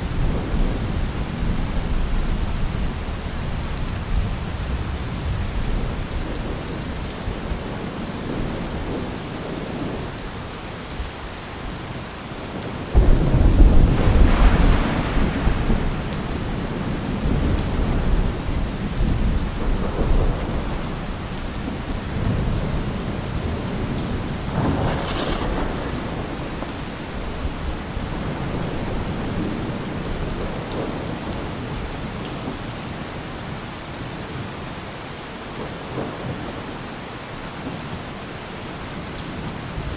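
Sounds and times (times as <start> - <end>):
heavy rain: 0.0 - 39.9
thunder rumbling: 12.6 - 31.9.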